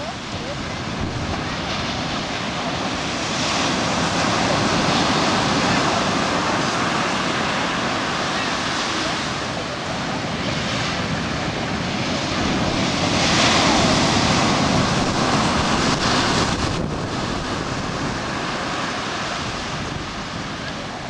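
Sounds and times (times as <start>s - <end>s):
ocean surf washing in: 0.0s - 21.0s
wind buffeting microphone: 0.0s - 21.0s.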